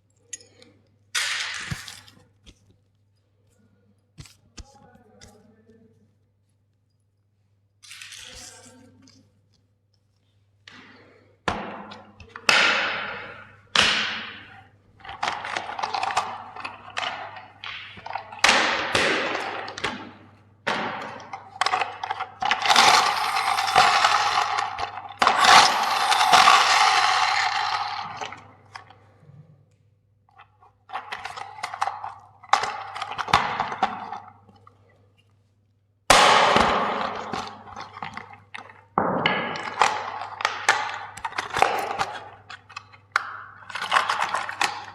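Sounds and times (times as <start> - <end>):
plastic toys cracking and crunching: 21.5 - 28.9, 39.6 - 44.9.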